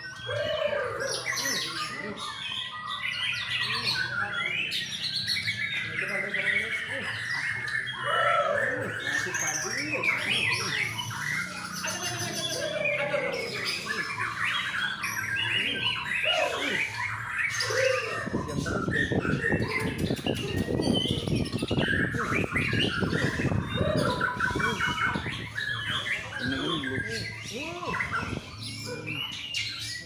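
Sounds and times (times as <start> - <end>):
birds singing and calling: 0.0 - 30.0.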